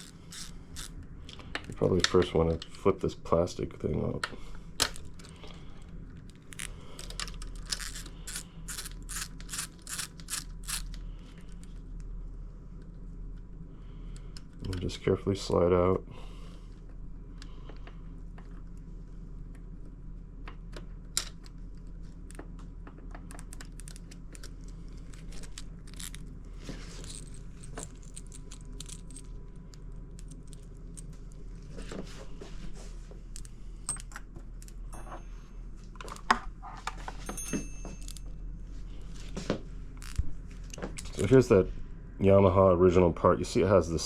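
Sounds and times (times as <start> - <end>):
low steady hum: 0.0 - 44.0
metallic clinks of tools: 37.2 - 38.2.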